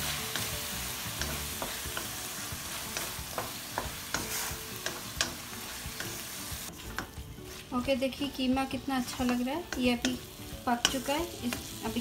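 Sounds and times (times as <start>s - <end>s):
meat sizzling in a wok: 0.0s - 12.0s
wooden spatula scraping a pan: 2.6s - 5.0s, 6.0s - 8.1s.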